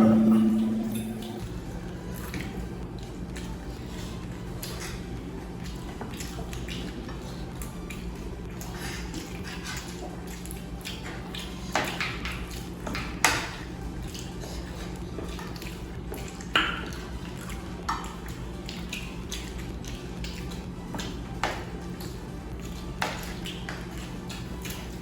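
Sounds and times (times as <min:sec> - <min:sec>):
dishes and cutlery clinking: 0:00.0 - 0:01.5
steady low hum: 0:00.0 - 0:11.7.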